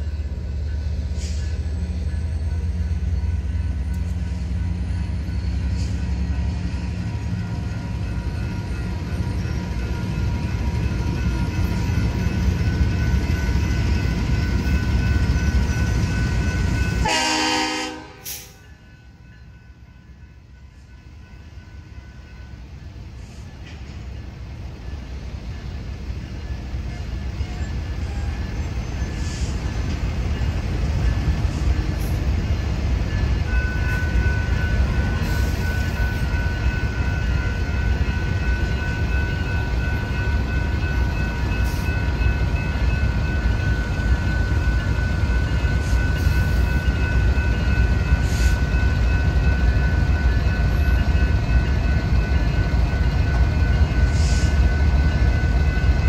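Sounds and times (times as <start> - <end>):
train rumbling past: 0.0 - 56.0.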